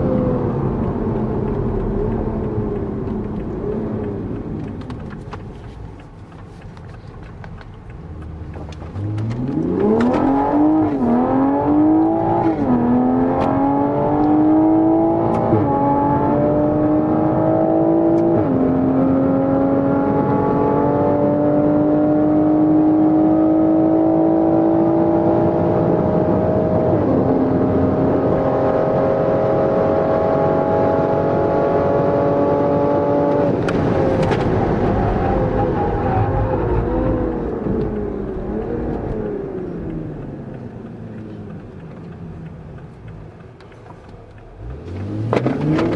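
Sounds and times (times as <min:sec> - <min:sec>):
car engine accelerating: 0:00.0 - 0:45.9.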